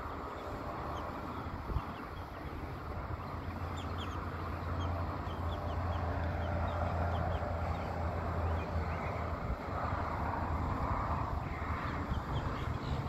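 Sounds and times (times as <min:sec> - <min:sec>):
bird chirping: 0:00.0 - 0:09.2
wind rumbling on microphone: 0:00.0 - 0:13.0.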